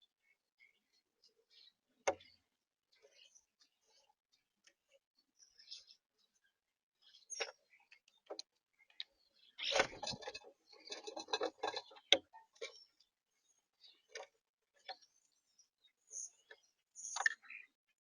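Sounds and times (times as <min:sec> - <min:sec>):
rustling and knocking: 0:09.7 - 0:12.1.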